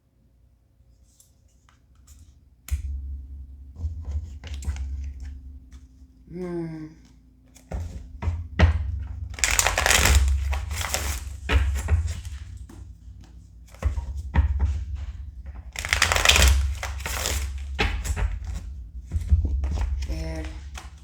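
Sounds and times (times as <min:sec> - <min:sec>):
taps and clicks of card handling: 0:03.9 - 0:05.9, 0:07.0 - 0:21.0
cards being shuffled: 0:09.2 - 0:12.6, 0:13.6 - 0:21.0.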